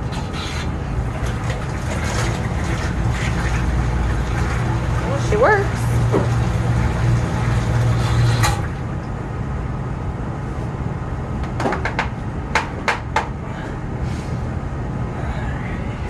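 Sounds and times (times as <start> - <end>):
pump motor humming: 0.0 - 9.6.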